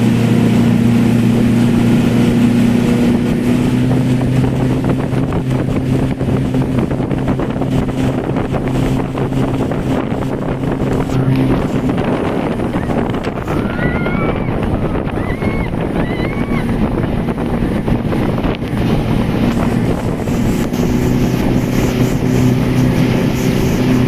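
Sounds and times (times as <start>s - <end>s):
motorboat engine running: 0.0s - 24.0s
wind buffeting microphone: 0.0s - 24.0s.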